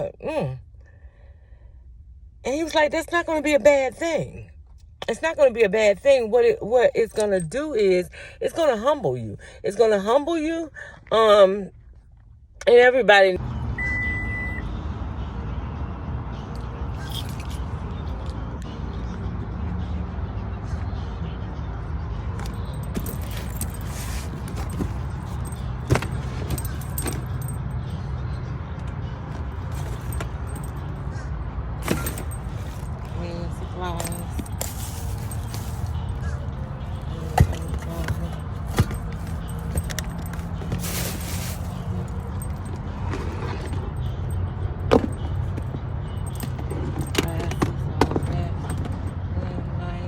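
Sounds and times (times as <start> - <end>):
light clicking and jingling: 22.4 - 49.5
car engine idling: 28.7 - 49.0.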